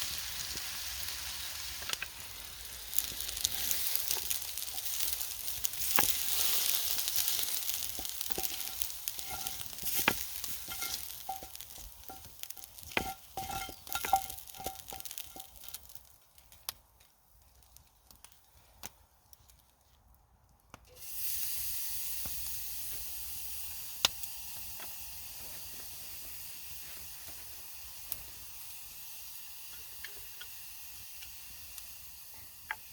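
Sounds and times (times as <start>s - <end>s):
food sizzling in a pan: 0.0s - 16.2s, 20.9s - 32.9s
metal utensil clinking on pan: 8.0s - 15.8s.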